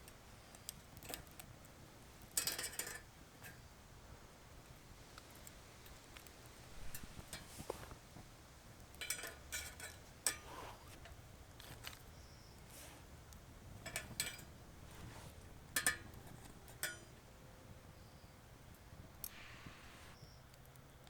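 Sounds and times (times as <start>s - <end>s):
wood fire crackling: 0.0s - 21.0s
metallic ringing pops: 15.8s - 17.2s.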